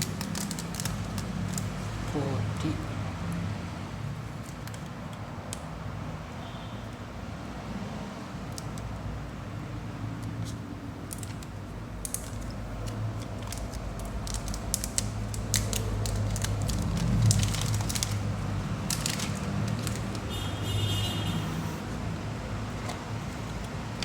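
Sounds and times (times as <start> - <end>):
plastic wrapping crinkling: 0.0 - 2.1, 10.5 - 20.5
low traffic hum: 0.0 - 24.0.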